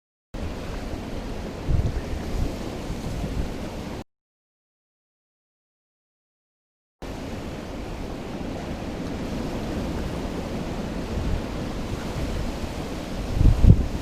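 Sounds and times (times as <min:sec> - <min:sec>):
wind buffeting microphone: 0:00.4 - 0:04.0, 0:07.0 - 0:14.0.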